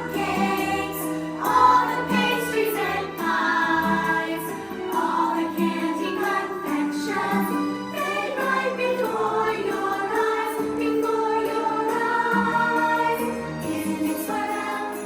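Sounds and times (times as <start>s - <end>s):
choir singing: 0.0s - 15.0s
instrumental backing music: 0.0s - 15.0s.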